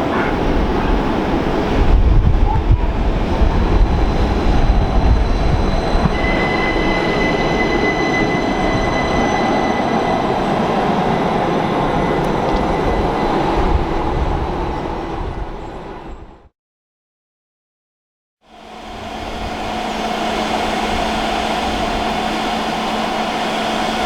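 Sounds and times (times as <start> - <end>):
train wheels rumbling on rail: 0.0 - 16.3, 18.5 - 24.0
high wheel squeal: 3.8 - 15.7, 18.6 - 24.0.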